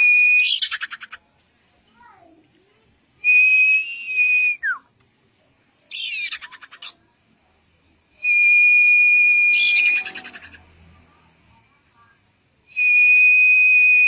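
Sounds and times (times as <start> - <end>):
bird whistling: 8.2 - 10.6, 12.7 - 14.0.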